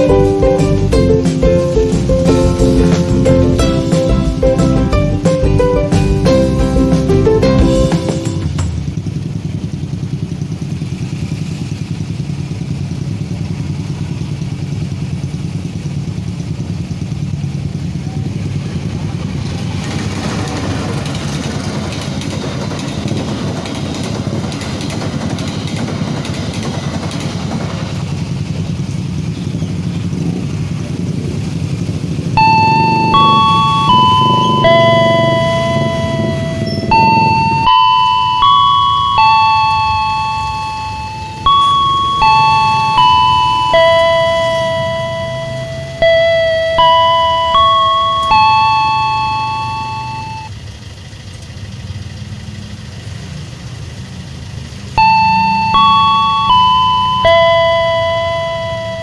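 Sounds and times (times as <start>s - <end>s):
vehicle engine running low: 0.0s - 59.0s
train rumbling past: 18.7s - 28.6s
level-crossing warning chime: 32.3s - 50.5s, 55.0s - 59.0s
pitched electronic tone: 32.4s - 50.5s, 55.0s - 59.0s.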